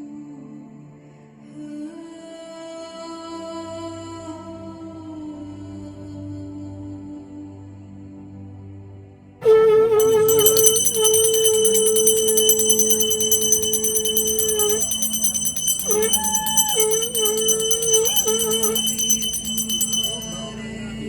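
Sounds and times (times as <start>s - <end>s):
small bell ringing rapidly: 9.4s - 20.8s
long held tone: 9.4s - 21.0s.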